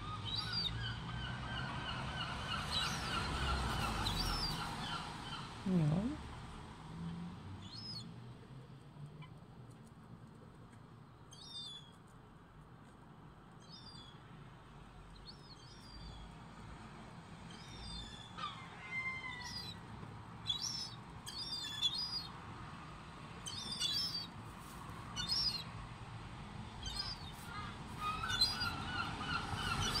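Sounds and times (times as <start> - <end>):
birds chirping: 26.8 - 30.0.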